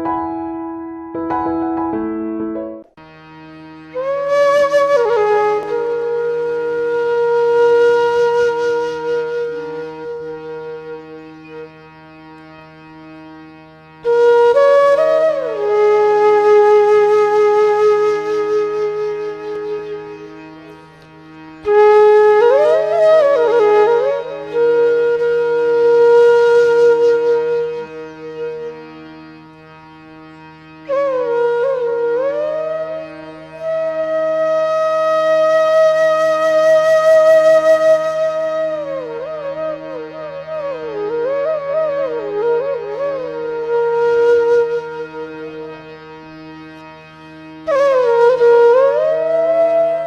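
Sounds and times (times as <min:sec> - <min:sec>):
keyboard passage: 0:00.0 - 0:03.0
flute holding long notes: 0:02.8 - 0:50.0
steady drone: 0:08.4 - 0:50.0.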